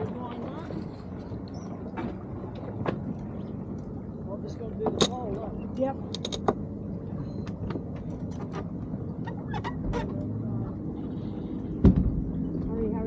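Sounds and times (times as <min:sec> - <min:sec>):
water rushing: 0:00.0 - 0:07.1.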